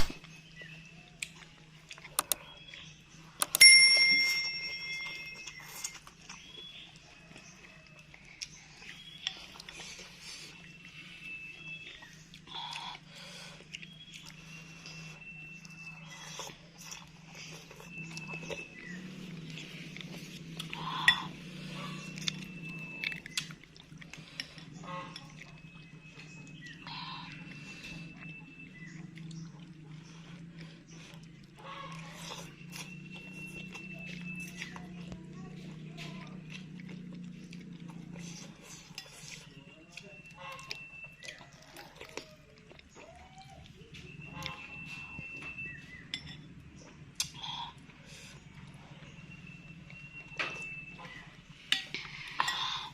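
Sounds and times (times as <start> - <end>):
chewing and slurping: 0.0 - 3.6, 4.3 - 52.9
spoon clinking against bowl: 3.4 - 5.7.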